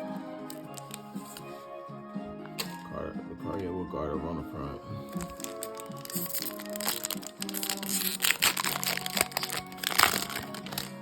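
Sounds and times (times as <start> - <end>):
background music: 0.0 - 11.0
foil pack crinkling: 0.4 - 1.5, 5.1 - 11.0.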